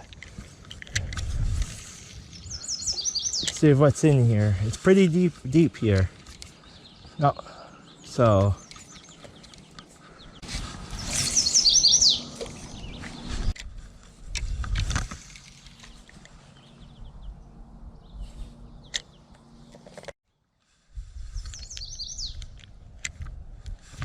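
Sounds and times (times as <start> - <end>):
microphone handling rustle: 0.0 - 2.4, 10.4 - 16.7
songbird chirping: 1.7 - 13.8, 15.4 - 20.5, 21.3 - 22.7.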